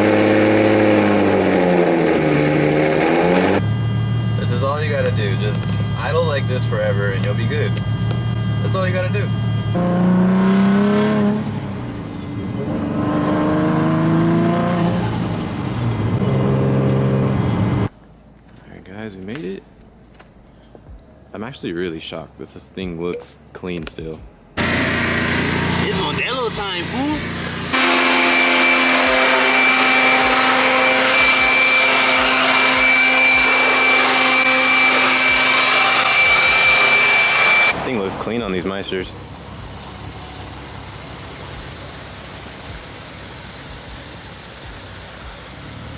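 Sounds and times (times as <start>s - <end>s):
blower motor whining: 0.0s - 17.9s, 24.6s - 38.3s
car engine accelerating: 0.0s - 17.9s, 24.6s - 45.9s.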